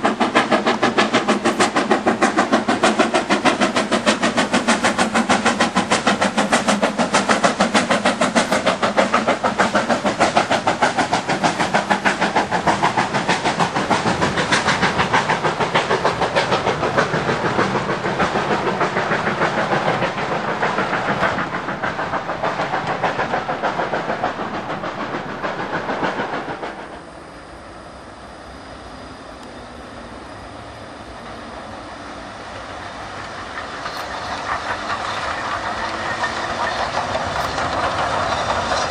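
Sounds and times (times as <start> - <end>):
steam train running past: 0.0 - 38.9.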